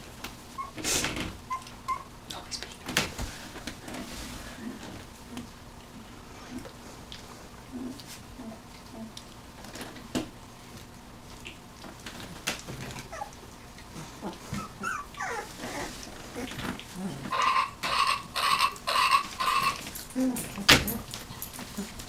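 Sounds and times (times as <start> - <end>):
puppies whimpering and squeaking: 0.5 - 2.2, 12.8 - 22.0
soft clicks and shuffling: 19.4 - 22.0.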